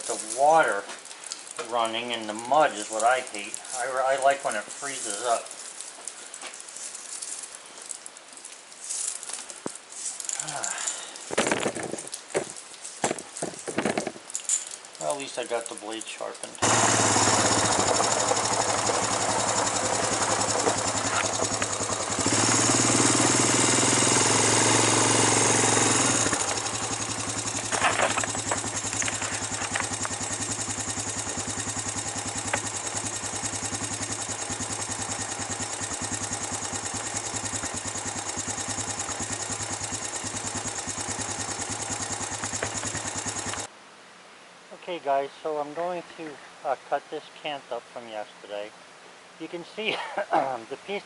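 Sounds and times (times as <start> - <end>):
engine running: 16.6 - 43.7.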